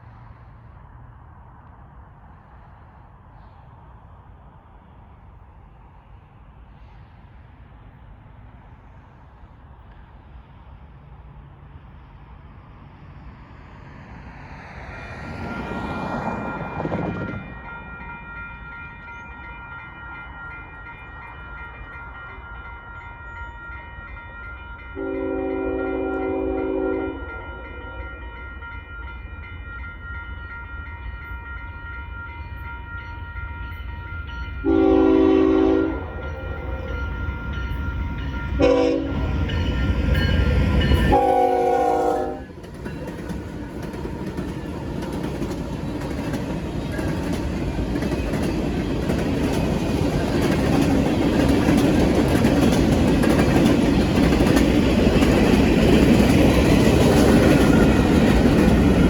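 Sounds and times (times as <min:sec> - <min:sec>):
freight train rolling past: 0:00.0 - 0:59.0
crossing bell ringing: 0:14.7 - 0:59.0
locomotive air horn: 0:25.0 - 0:28.4, 0:34.6 - 0:36.8, 0:38.6 - 0:39.4, 0:40.9 - 0:42.5.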